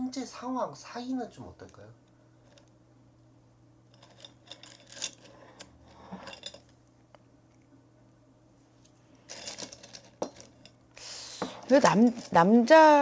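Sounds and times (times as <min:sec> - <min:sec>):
faint steady hum: 0:00.0 - 0:13.0
objects handled on a table: 0:03.9 - 0:07.7, 0:08.8 - 0:10.8, 0:11.4 - 0:12.8.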